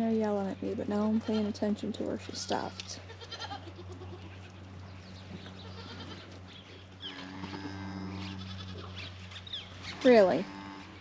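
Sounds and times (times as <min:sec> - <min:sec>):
goats bleating: 0:02.2 - 0:04.7, 0:05.5 - 0:06.4, 0:07.0 - 0:09.0.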